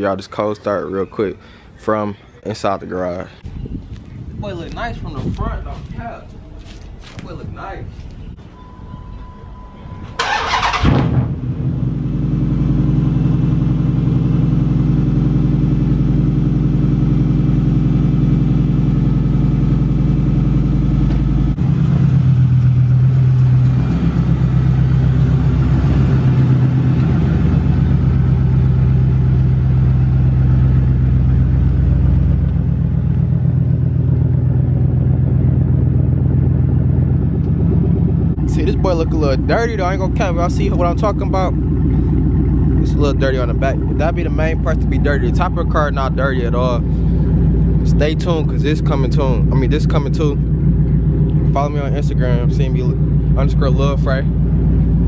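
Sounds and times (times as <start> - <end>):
car engine starting: 9.1 - 55.0
car engine idling: 9.8 - 55.0.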